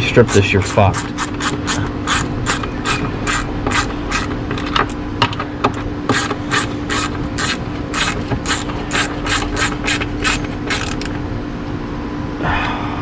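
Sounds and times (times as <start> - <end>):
hand ratchet clicking: 0.0 - 5.0, 5.7 - 11.1.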